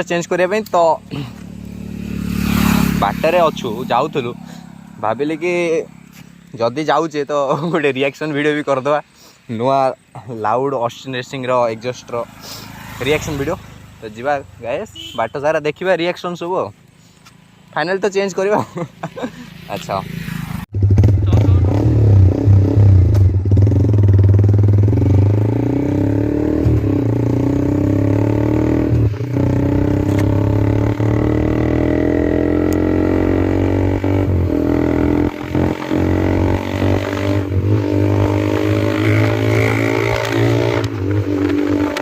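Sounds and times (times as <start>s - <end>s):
motorcycle engine running loud: 1.0s - 6.3s, 19.9s - 42.0s.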